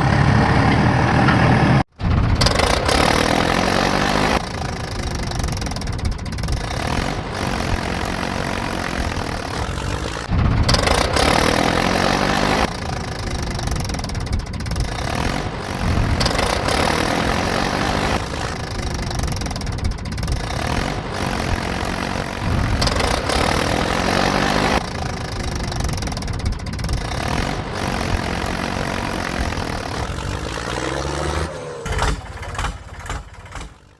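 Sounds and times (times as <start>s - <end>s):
heavy vehicle engine revving: 0.0s - 33.9s.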